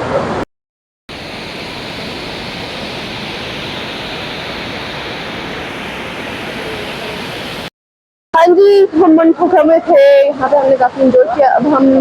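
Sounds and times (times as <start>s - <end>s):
waterfall rushing: 1.1s - 7.7s.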